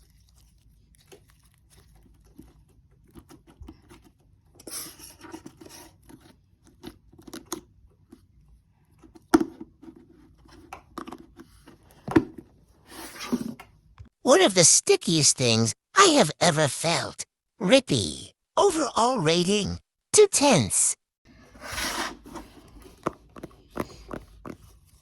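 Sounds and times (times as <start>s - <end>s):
hands squishing sticky slime: 0.0s - 4.2s.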